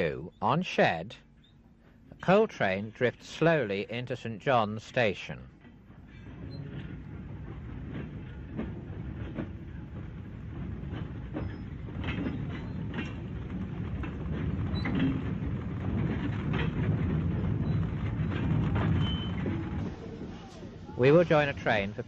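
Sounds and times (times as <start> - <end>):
train wheels rumbling on rail: 5.5 - 22.0
wagons clanking and knocking: 5.6 - 22.0.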